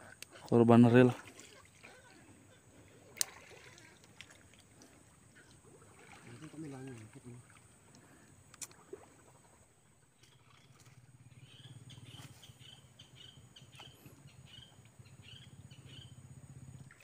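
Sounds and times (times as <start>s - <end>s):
low steady hum: 0.0s - 17.0s
faint bird chirping: 9.4s - 17.0s.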